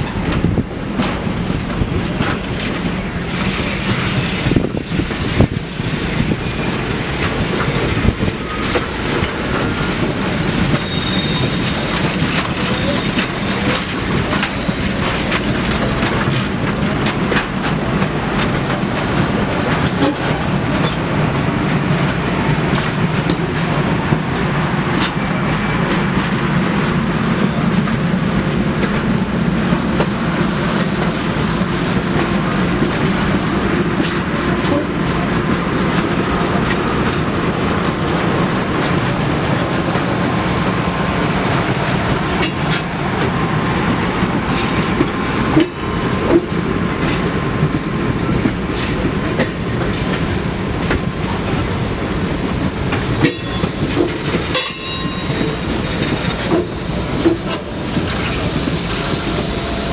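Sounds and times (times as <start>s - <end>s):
train wheels clicking over rail joints: 0.0s - 59.9s
faint wheel squeal: 10.0s - 11.9s.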